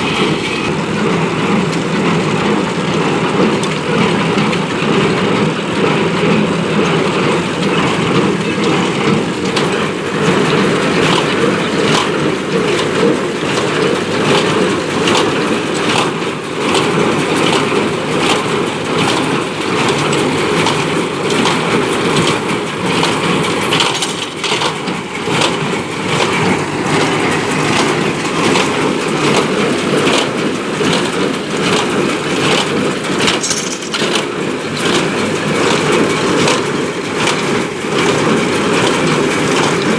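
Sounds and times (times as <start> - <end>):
tractor engine running under load: 0.0 - 39.9
baler mechanism clattering: 32.4 - 35.9.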